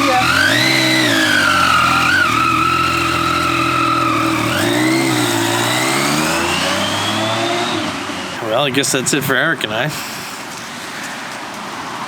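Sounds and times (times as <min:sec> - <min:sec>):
motorcycle engine accelerating: 0:00.0 - 0:08.4.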